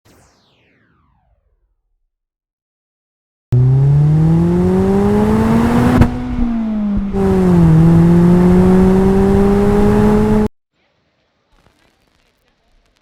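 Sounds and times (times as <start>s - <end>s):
car engine accelerating: 3.5s - 10.5s.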